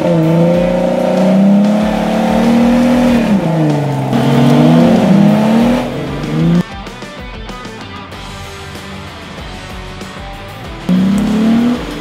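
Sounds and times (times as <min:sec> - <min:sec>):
off-road vehicle engine revving: 0:00.0 - 0:06.7, 0:10.8 - 0:12.0.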